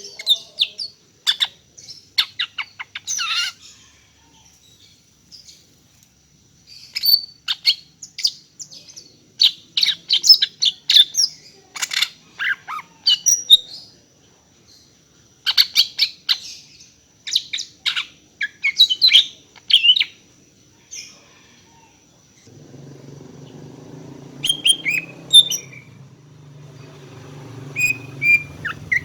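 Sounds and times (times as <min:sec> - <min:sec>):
bird chirping and whistling: 0:24.4 - 0:26.0, 0:27.6 - 0:29.0.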